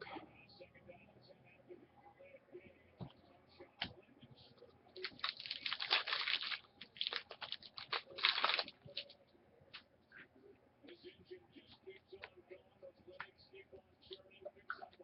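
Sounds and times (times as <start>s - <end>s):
card packaging crinkling: 5.0s - 9.1s.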